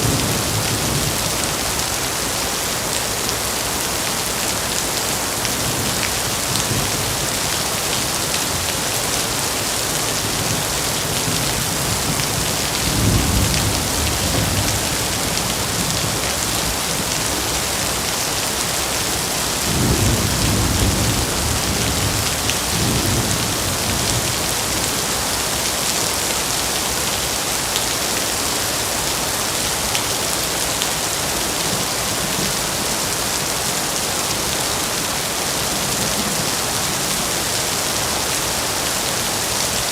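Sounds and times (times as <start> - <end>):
heavy rain: 0.0 - 39.9
low thunder rumbling: 10.3 - 17.1.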